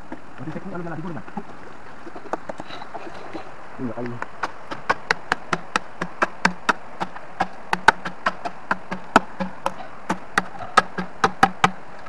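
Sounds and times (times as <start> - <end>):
steady hiss: 0.0 - 12.0
tool knocking on bamboo: 4.3 - 11.8.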